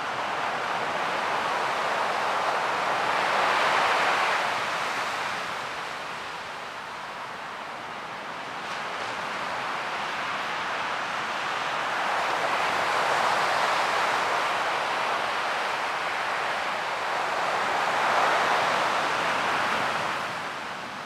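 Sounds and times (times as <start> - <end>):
ocean waves washing in: 6.8 - 21.0.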